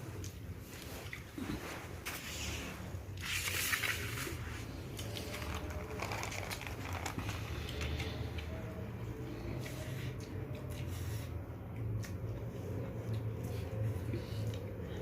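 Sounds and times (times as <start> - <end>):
crinkly burst of noise: 3.2 - 8.2
wet chewing: 9.4 - 15.0.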